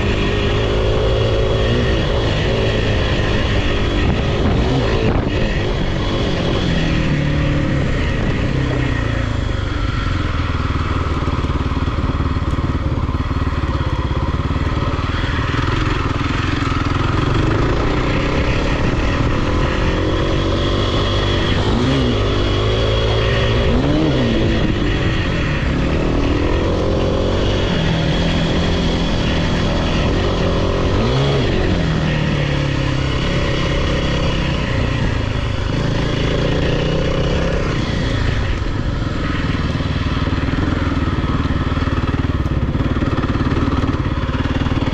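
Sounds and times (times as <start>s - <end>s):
dirt bike engine running: 0.0s - 44.9s.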